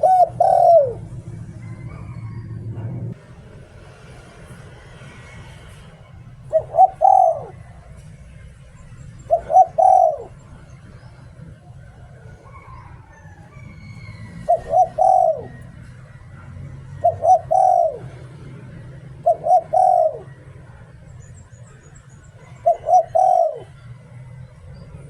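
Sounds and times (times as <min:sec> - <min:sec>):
dove cooing: 0:00.0 - 0:03.0, 0:05.0 - 0:24.3
small birds chirping: 0:05.9 - 0:18.2, 0:19.0 - 0:25.0.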